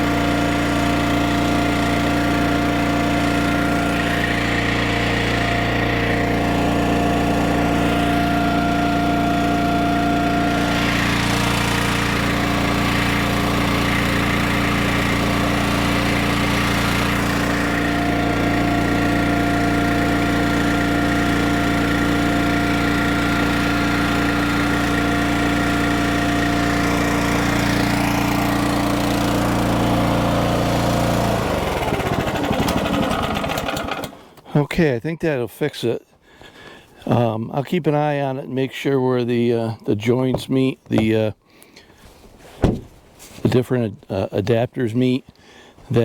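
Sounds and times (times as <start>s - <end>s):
small gasoline engine running: 0.0s - 34.5s.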